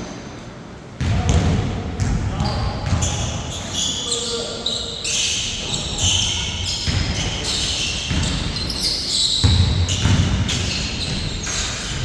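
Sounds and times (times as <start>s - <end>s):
basketball bouncing: 1.0s - 3.2s, 8.1s - 8.8s, 9.4s - 12.0s.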